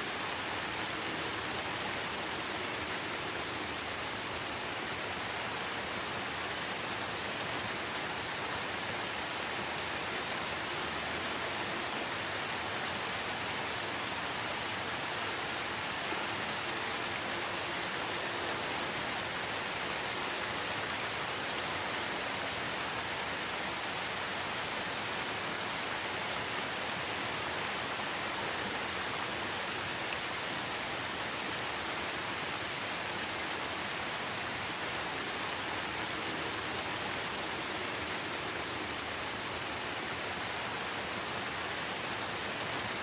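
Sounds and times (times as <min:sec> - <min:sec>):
rain falling on leaves: 0:00.0 - 0:43.0.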